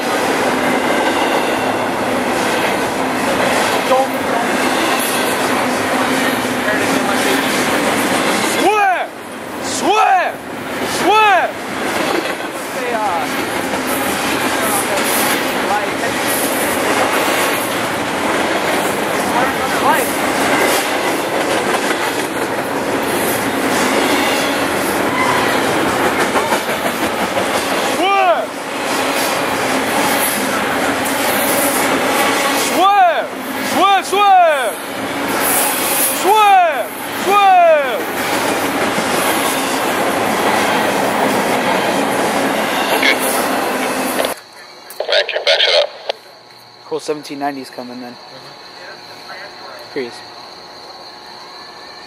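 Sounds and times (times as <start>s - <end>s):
train cars rolling on rails: 0.0s - 52.0s
wheels clacking over rail joints: 10.7s - 44.5s.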